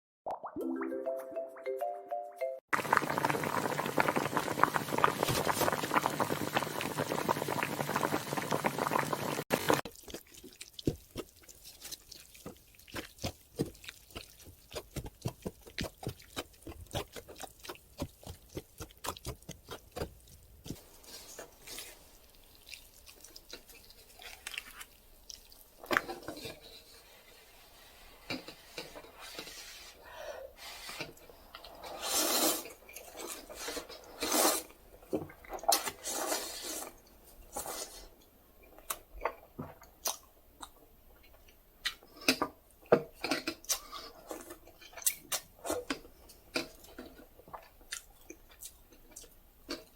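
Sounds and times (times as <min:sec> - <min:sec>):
wet liquid noise: 0:02.8 - 0:28.6
small drips and clicks: 0:21.4 - 0:26.5, 0:38.2 - 0:43.8.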